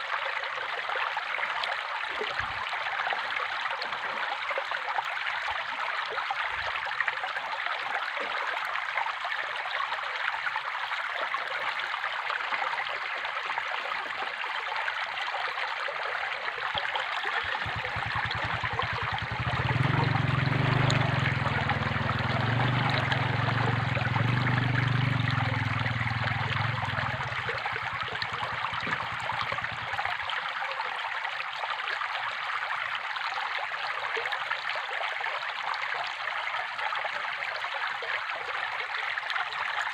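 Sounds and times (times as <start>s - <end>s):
water trickling and splashing: 0.0s - 39.9s
low hum: 17.6s - 30.1s.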